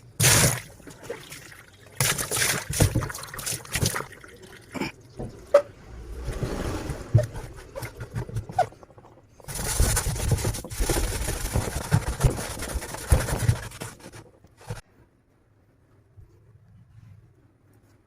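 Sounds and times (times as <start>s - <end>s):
scrubbing and scraping: 5.1s - 14.8s.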